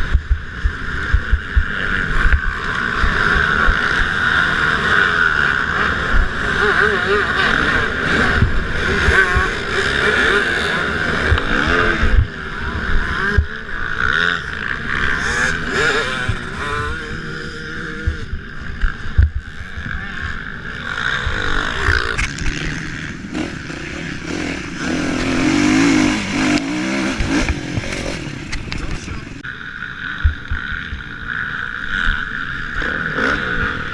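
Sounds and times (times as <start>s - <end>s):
motocross bikes revving: 0.0s - 33.9s.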